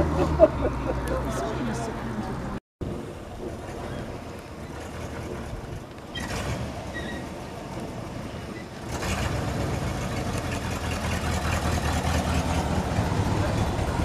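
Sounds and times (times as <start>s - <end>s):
car engines running: 0.0s - 14.0s
pickup truck engine: 2.9s - 14.0s.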